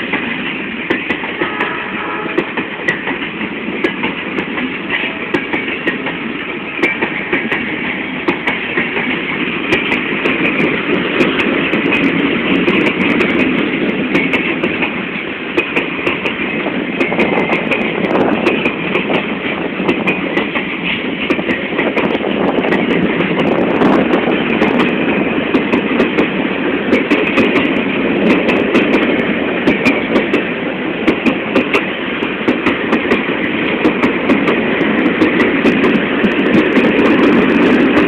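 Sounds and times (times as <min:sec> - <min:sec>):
train rumble: 0:00.0 - 0:38.0
train wheels clattering over rail joints: 0:00.0 - 0:38.0.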